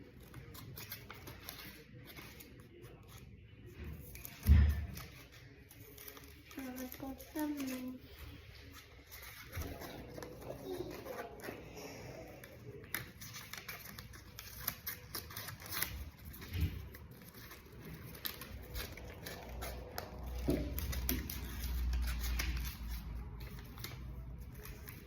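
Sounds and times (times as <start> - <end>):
scissors snipping paper: 0.0 - 3.4, 4.0 - 25.0
paper rustling: 0.0 - 25.0.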